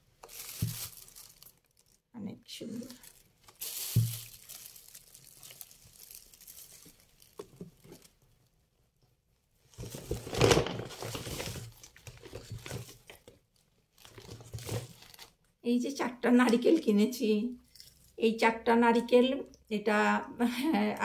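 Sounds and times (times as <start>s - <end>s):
bag crinkling and rustling: 0.0s - 2.0s, 2.6s - 8.2s, 9.7s - 15.4s.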